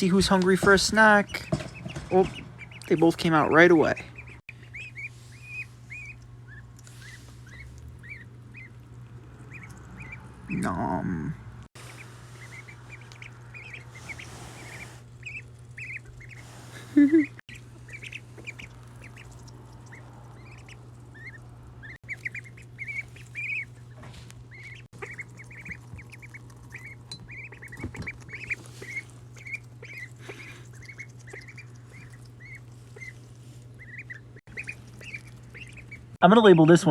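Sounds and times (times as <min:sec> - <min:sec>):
ducklings peeping: 0:00.0 - 0:36.9
steady low hum: 0:00.0 - 0:36.9
rustling: 0:11.8 - 0:21.1, 0:22.1 - 0:36.2.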